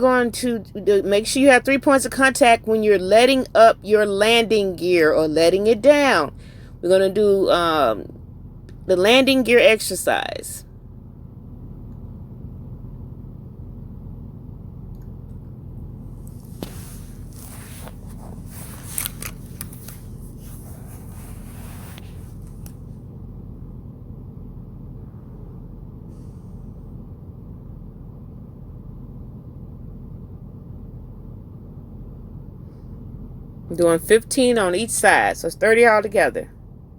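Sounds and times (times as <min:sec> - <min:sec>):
truck engine hum: 0:00.0 - 0:36.9
rustling and scraping: 0:16.2 - 0:22.9.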